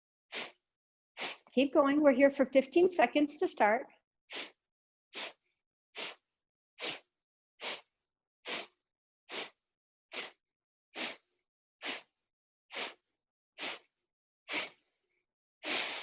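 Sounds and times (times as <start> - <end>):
sharp exhales through the nose: 0.3 - 0.6, 1.2 - 1.5, 4.3 - 4.6, 5.2 - 6.2, 6.8 - 7.9, 8.5 - 10.4, 11.0 - 12.1, 12.7 - 13.0, 13.6 - 13.9, 14.5 - 15.0, 15.6 - 16.0.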